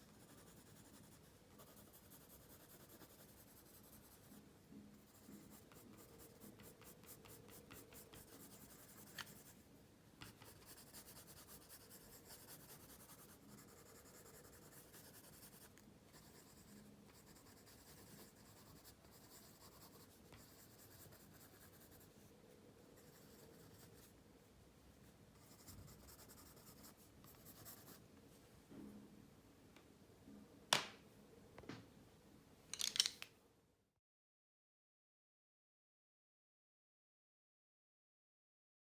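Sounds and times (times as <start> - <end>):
pencil scratching on paper: 0.0 - 9.6, 10.2 - 22.3, 23.0 - 24.1, 25.4 - 28.0.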